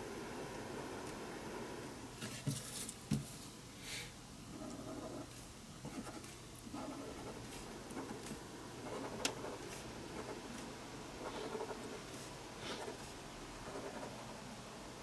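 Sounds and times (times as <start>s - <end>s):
pen scratching on paper: 4.5s - 14.4s.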